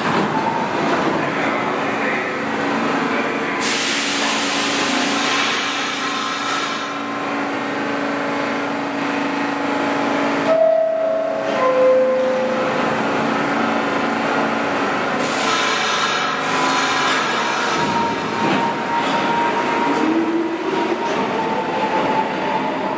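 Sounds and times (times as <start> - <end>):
train humming: 7.1 - 22.9
two-note door chime: 10.5 - 12.7.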